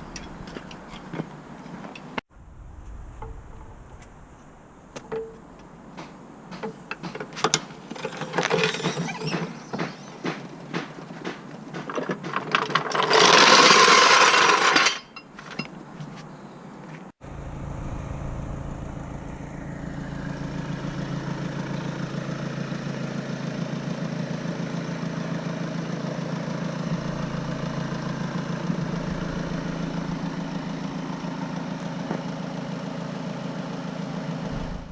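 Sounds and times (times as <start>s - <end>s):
diesel engine idling: 17.2s - 34.9s.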